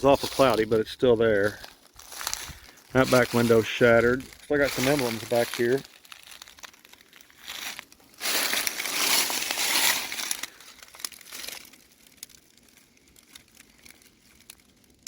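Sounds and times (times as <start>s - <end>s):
rustling and crunching: 0.0s - 15.0s.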